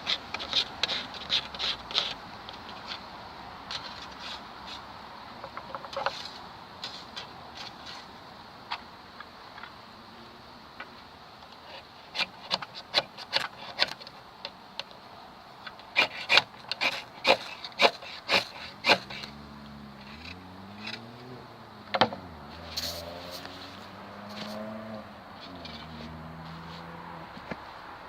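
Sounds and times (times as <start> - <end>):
scraping and cracking wood: 11.7 - 14.2, 15.7 - 19.4.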